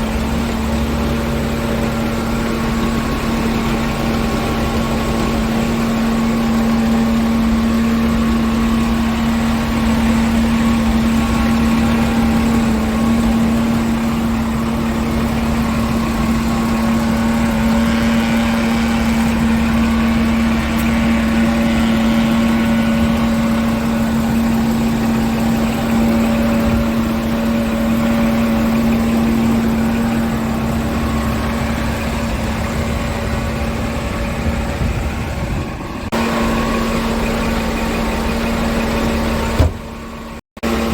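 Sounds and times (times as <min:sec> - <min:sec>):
diesel truck engine idling: 0:00.0 - 0:40.9.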